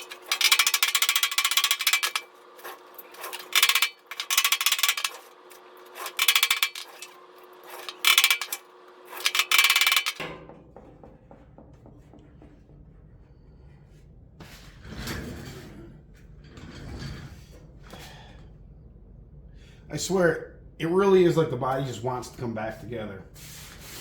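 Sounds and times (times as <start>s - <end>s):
steady background hum: 0.0s - 24.0s
hammer on metal panel: 10.2s - 12.8s.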